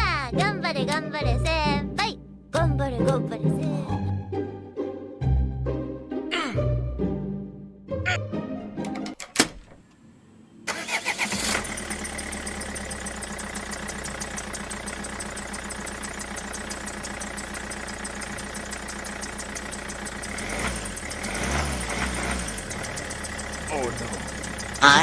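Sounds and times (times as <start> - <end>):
engine cranking and idling: 10.6 - 25.0.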